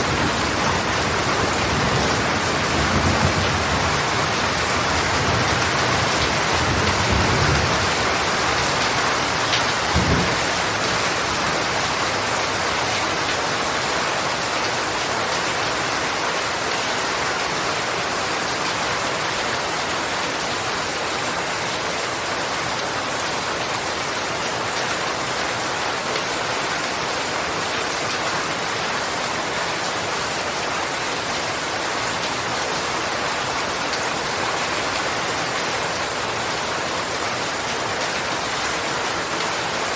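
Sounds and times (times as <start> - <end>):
heavy rain falling: 0.0 - 39.9
low rumble of thunder: 9.8 - 10.5.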